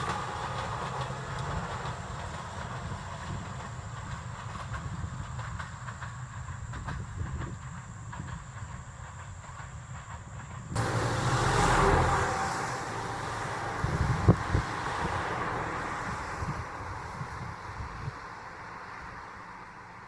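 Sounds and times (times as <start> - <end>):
train wheels clicking: 0.0 - 17.6
train rumbling on rails: 0.0 - 20.0
loud rushing hiss: 10.7 - 17.7.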